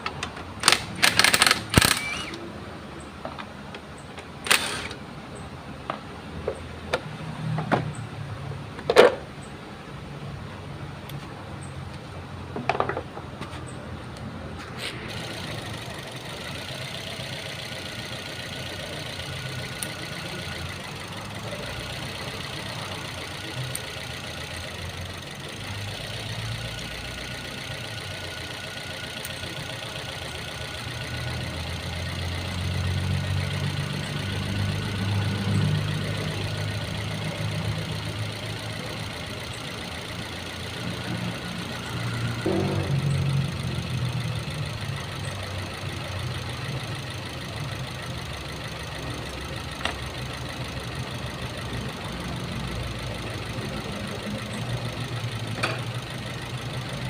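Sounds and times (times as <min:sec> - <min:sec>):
sharp clicks: 0:00.0 - 0:02.5, 0:03.4 - 0:05.0
car engine idling: 0:09.4 - 0:57.0.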